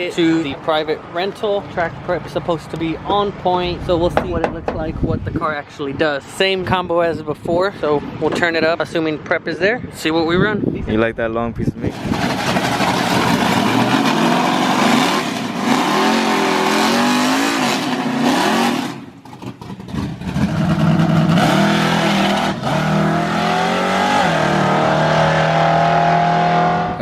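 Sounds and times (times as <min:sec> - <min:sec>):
car engine revving: 0:11.9 - 0:27.0.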